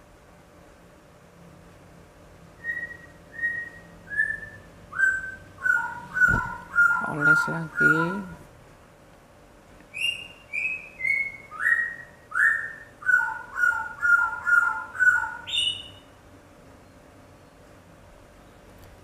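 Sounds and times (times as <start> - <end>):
bird calling: 2.6 - 8.4, 9.9 - 16.1.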